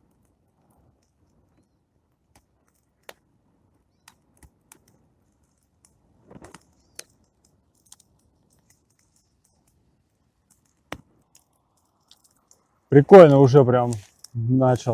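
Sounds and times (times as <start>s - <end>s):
bonfire crackling: 0.0s - 14.9s.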